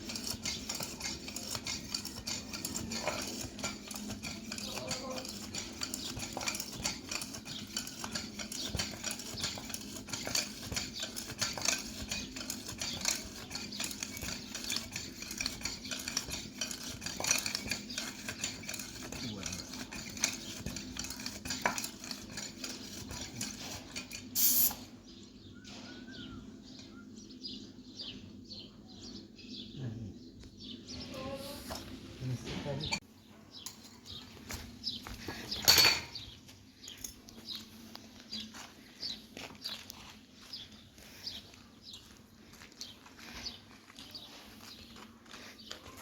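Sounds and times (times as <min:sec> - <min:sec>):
metal clinking and scraping: 0:00.0 - 0:24.9, 0:33.6 - 0:36.3.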